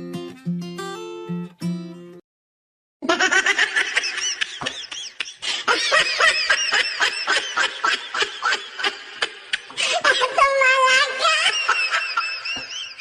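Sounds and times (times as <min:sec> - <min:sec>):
high-pitched giggling laughter: 0:03.0 - 0:13.0.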